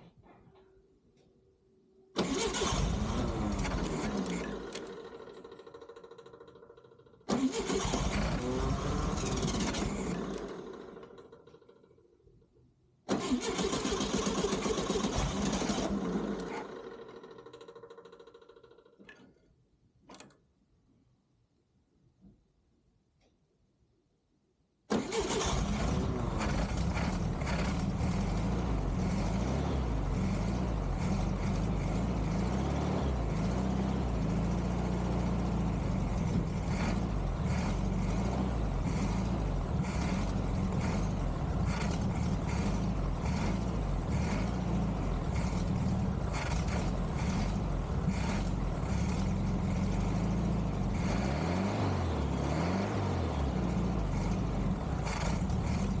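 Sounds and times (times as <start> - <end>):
car engine running: 2.2 - 11.8, 25.4 - 56.0.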